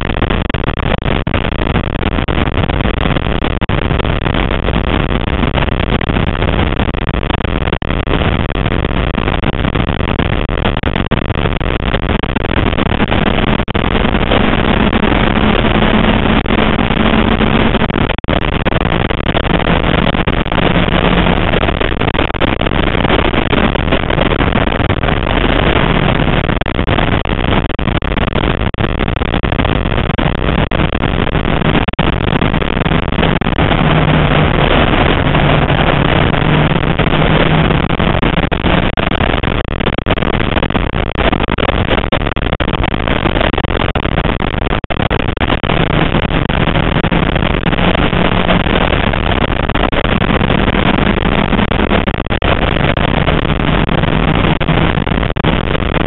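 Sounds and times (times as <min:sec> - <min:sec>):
road and wind noise: 0:09.6 - 0:27.8, 0:29.6 - 0:39.5, 0:45.4 - 0:55.8
car engine running hard: 0:14.2 - 0:17.8.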